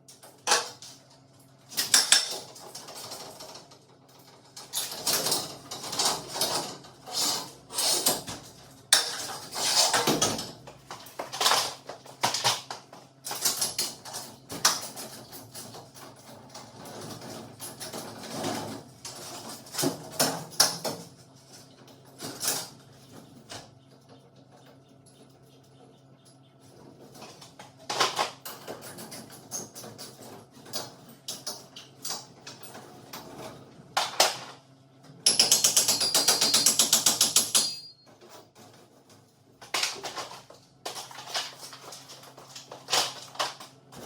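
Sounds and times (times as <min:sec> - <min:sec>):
metal tools clinking and clanking: 0:35.3 - 0:38.8.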